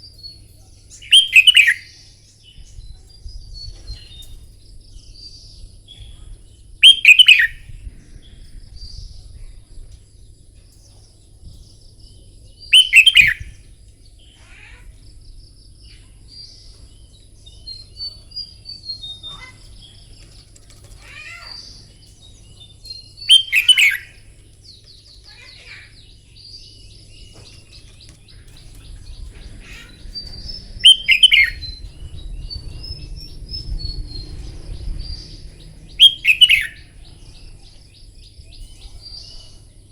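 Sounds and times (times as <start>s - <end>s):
bird chirps and twittering: 0.0s - 39.9s
bird song phrases: 0.0s - 39.9s.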